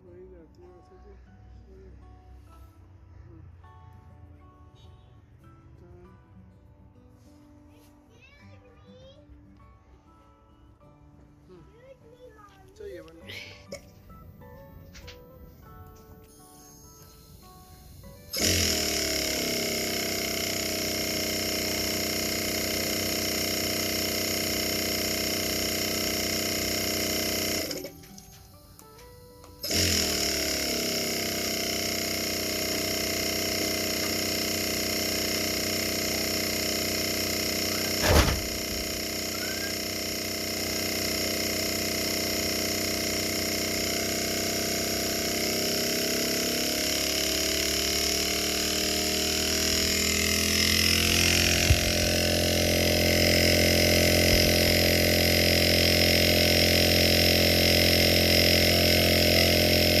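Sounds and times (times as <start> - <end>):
refrigerator compressor humming: 16.6 - 60.0
sharp click: 37.9 - 38.7.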